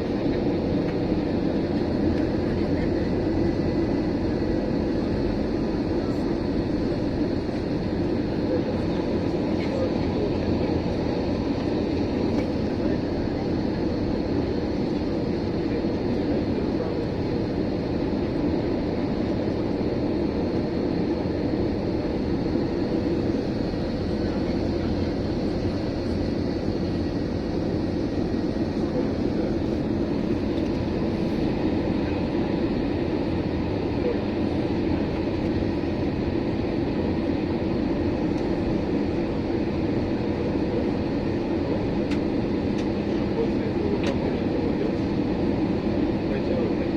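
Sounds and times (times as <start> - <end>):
aircraft engine and airflow noise: 0.0 - 46.9
faint steady whines: 0.0 - 46.9.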